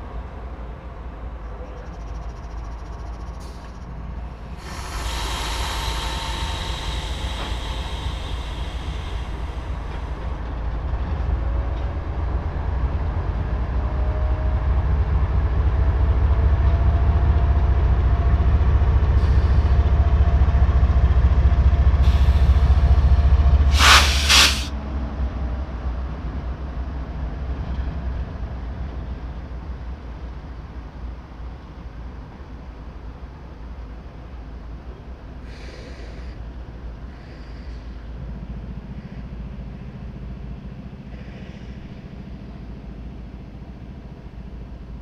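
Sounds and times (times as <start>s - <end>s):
freight train rumbling by: 2.4s - 24.7s
high hiss: 4.4s - 10.4s, 22.0s - 24.7s
loud rushing burst: 23.7s - 24.7s.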